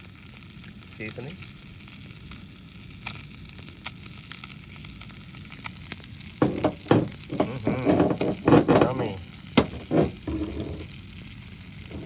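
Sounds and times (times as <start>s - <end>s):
limpets sizzling in butter: 0.0s - 12.0s.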